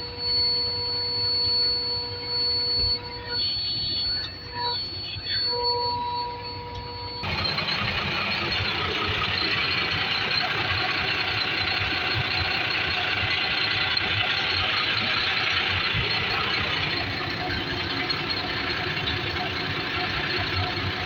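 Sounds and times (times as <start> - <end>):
truck engine idling: 7.2 - 21.0.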